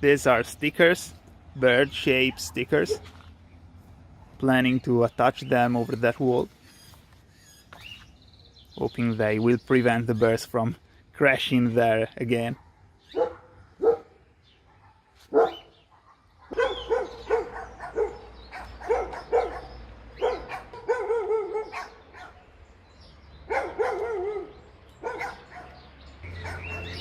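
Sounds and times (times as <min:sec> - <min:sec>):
animal calling: 0:15.4 - 0:22.4, 0:23.5 - 0:27.0.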